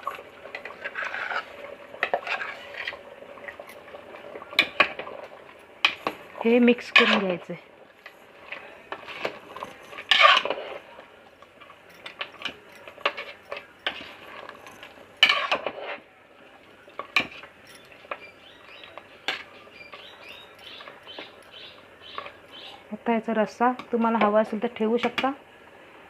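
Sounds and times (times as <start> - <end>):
spoon scraping a pot: 0.0 - 3.9, 4.6 - 11.0, 11.6 - 16.0, 16.9 - 22.8.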